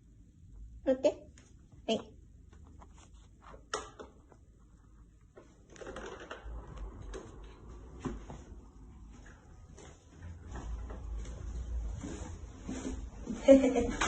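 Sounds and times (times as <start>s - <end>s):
shuffling: 1.4s - 3.7s, 7.6s - 14.0s.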